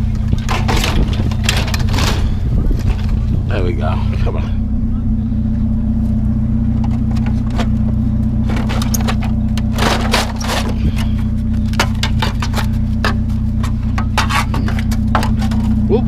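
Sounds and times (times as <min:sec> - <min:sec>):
vehicle engine idling: 0:00.0 - 0:16.0
scrap metal clinking: 0:06.8 - 0:15.9.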